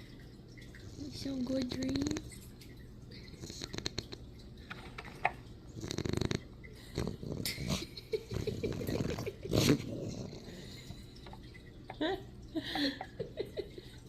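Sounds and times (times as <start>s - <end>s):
puppy snoring: 0.8s - 2.3s, 3.4s - 4.2s, 5.7s - 10.9s.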